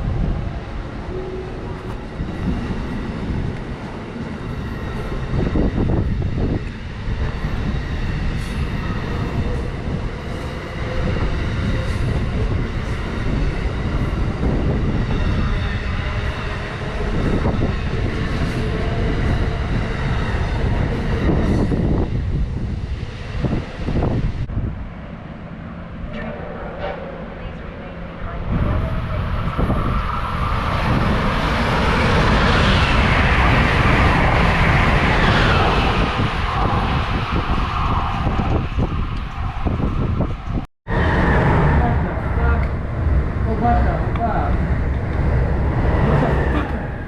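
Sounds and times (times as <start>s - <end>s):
rail clicks: 0.0s - 22.2s, 42.1s - 47.0s
train wheels rumbling on track: 0.0s - 47.0s.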